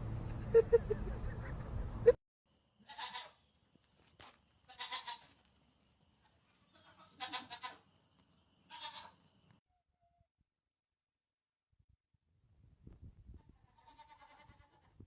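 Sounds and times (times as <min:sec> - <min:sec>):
animal bleating: 0:02.8 - 0:03.4, 0:04.7 - 0:05.4, 0:06.6 - 0:07.9, 0:08.7 - 0:09.2, 0:13.4 - 0:15.0.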